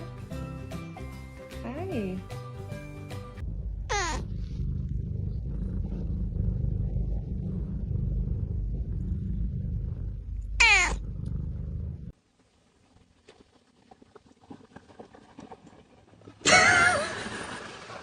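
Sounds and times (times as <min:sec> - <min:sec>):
cat purring: 0:03.4 - 0:12.2
cat meow: 0:10.6 - 0:11.0.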